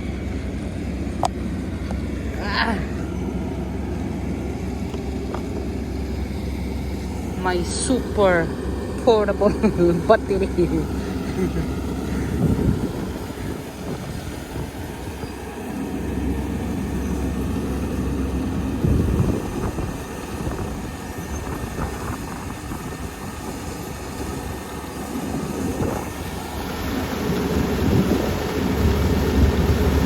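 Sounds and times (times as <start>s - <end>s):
combine harvester rumbling: 0.0s - 30.0s.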